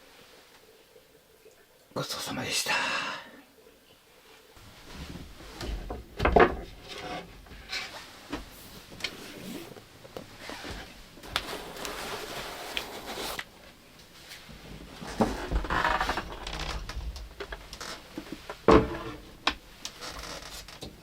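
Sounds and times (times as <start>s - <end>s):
rustling: 6.6s - 20.9s.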